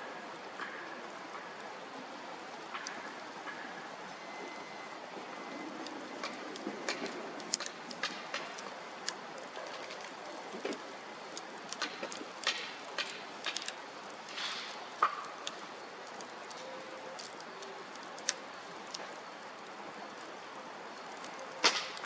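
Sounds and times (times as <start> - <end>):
bonfire crackling: 4.8 - 22.0.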